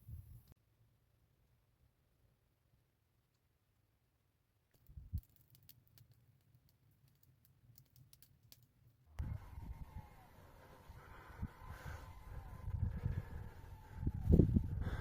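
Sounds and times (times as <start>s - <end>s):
sharp clicks: 4.7s - 9.3s.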